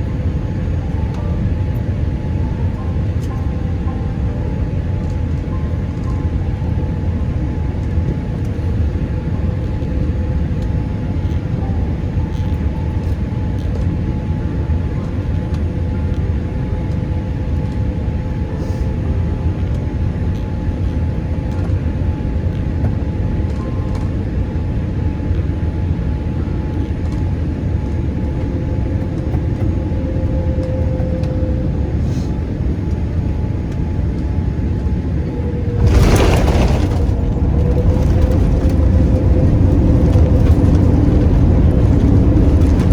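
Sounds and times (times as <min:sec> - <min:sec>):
airliner cabin rumble: 0:00.0 - 0:42.9
steady engine tones: 0:27.1 - 0:42.9.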